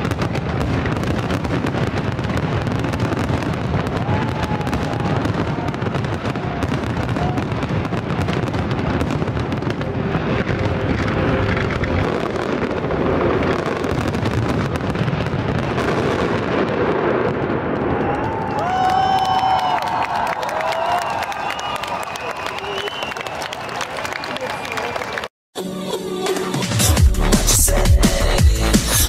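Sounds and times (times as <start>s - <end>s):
fireworks bangs and crackles: 0.0s - 23.1s.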